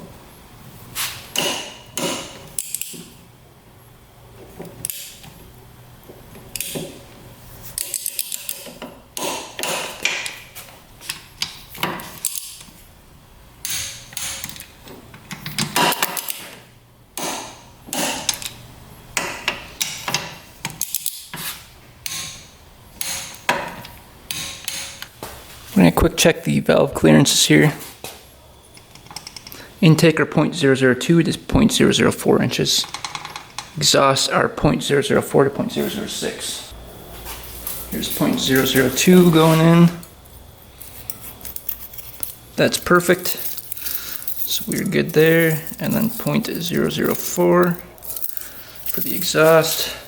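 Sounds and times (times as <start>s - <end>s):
metal socket clinking on bolts: 11.4s - 12.7s.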